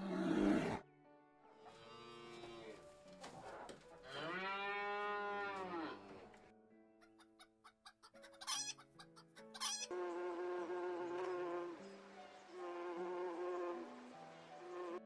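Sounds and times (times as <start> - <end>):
light background music: 0.0 - 15.0
chickens clucking and squawking: 7.0 - 10.0.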